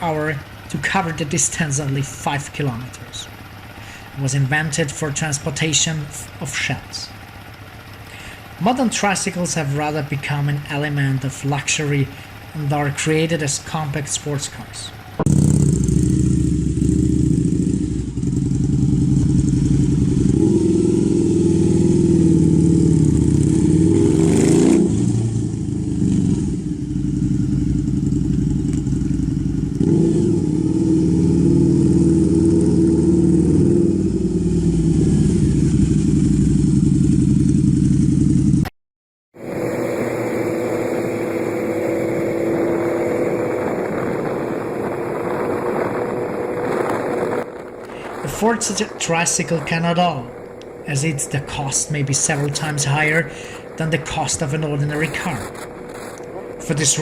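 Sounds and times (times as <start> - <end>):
different engine sound: 0.0 - 38.7, 39.4 - 57.0
motorcycle engine running: 0.0 - 38.7, 39.4 - 57.0.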